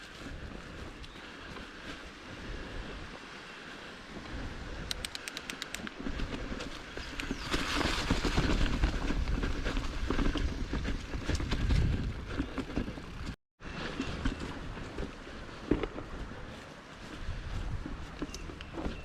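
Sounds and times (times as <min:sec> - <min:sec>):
wind rumble on microphone: 0:00.0 - 0:05.2, 0:05.8 - 0:19.0
mountain bike rattling over rocks: 0:06.0 - 0:19.0.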